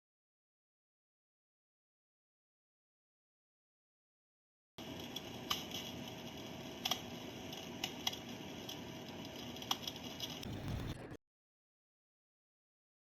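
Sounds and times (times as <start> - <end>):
recorded fire crackling pops: 4.8 - 11.2
low rumble: 10.4 - 11.2.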